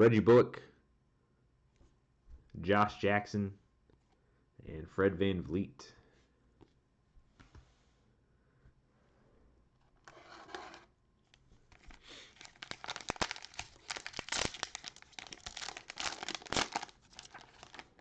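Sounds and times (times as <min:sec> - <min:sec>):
cellophane wrapper crinkling: 0:11.7 - 0:18.0.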